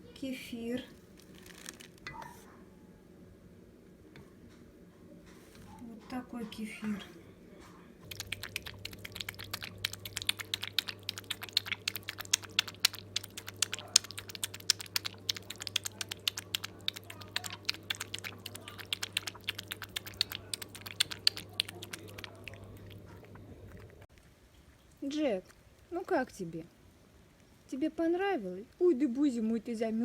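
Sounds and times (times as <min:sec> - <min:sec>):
dog eating and lapping: 0:08.0 - 0:26.8.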